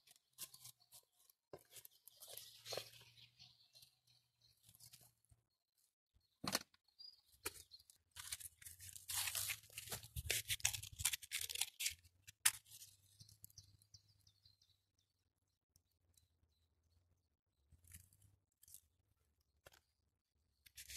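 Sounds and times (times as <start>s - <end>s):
material tearing and crumpling: 8.2s - 12.8s.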